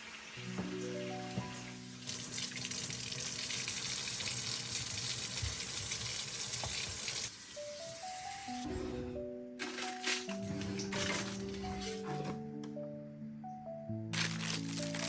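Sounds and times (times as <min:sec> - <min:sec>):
soft background music: 0:00.2 - 0:03.8, 0:07.3 - 0:15.0
tap running into sink: 0:05.0 - 0:07.2.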